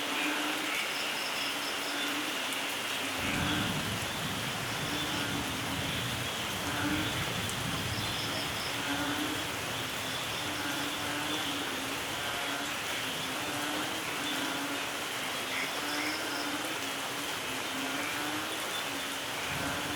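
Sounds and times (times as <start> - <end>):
light rain falling: 0.0 - 19.9
distant thunder rumble: 3.2 - 11.4.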